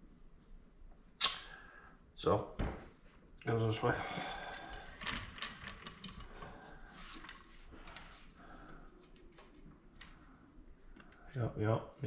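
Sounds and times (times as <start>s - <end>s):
small parts clicking and tapping: 5.0s - 6.4s.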